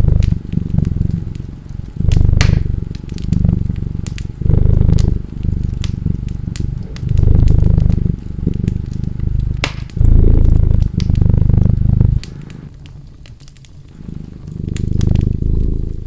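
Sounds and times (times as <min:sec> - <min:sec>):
cat purring: 0:00.0 - 0:16.0
wood fire crackling: 0:00.0 - 0:16.0.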